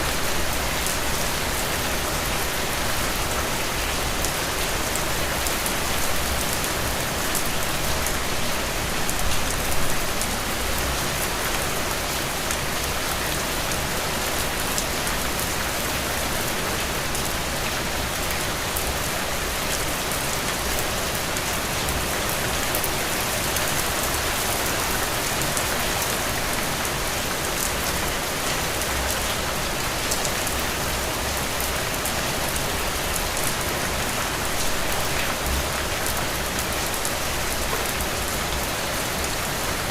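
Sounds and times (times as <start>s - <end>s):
heavy rain on a surface: 0.0s - 39.9s.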